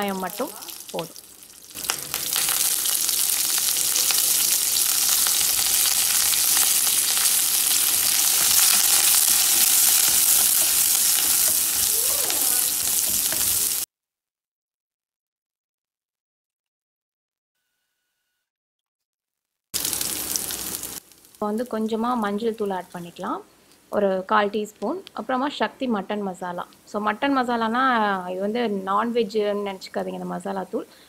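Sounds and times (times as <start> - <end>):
vegetables sizzling in hot oil: 0.0 - 13.9, 19.8 - 23.2.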